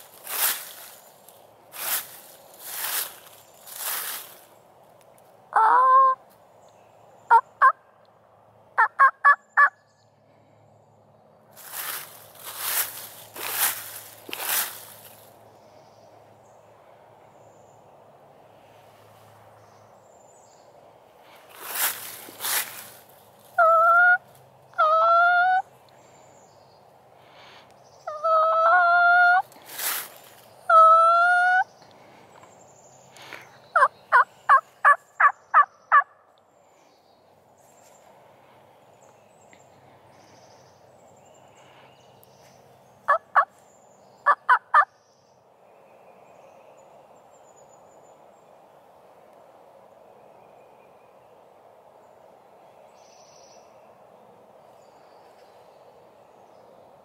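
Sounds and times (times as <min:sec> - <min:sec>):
loud bird calls: 0:19.6 - 0:38.2, 0:38.8 - 0:48.4.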